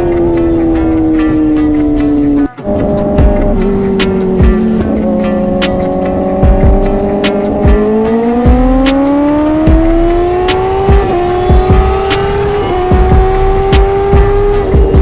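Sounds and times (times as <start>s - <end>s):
motorcycle engine revving: 0.0s - 15.0s
music with fast drum beat: 3.2s - 15.0s.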